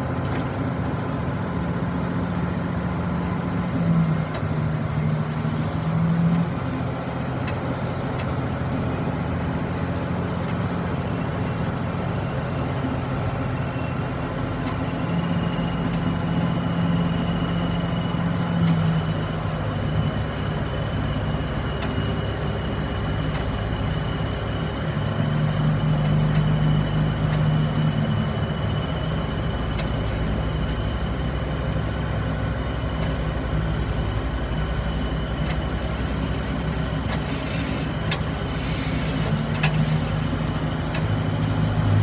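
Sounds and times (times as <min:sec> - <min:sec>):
tug engine running steadily: 0:00.0 - 0:42.0
high-pitched whine: 0:11.0 - 0:42.0.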